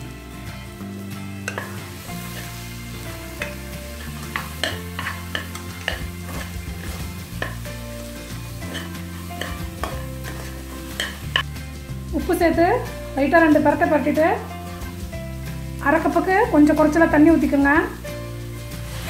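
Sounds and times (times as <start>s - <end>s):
food sizzling in hot oil: 0.0s - 19.0s
metal ladle scraping pot: 1.4s - 2.6s, 3.3s - 7.6s, 8.6s - 11.4s.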